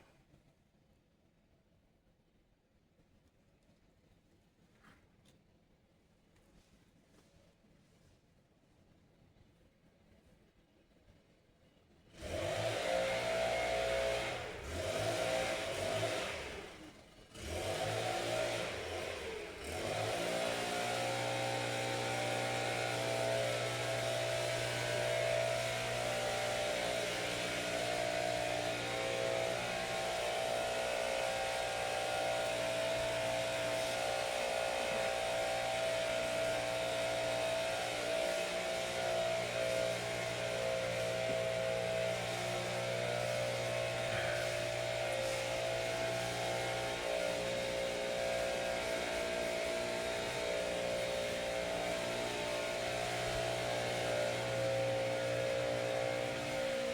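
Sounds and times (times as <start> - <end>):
engine revving: 12.1 - 56.9.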